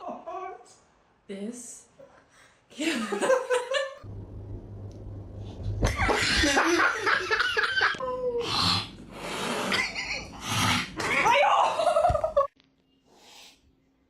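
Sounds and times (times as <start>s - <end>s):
low steady hum: 2.9s - 8.4s.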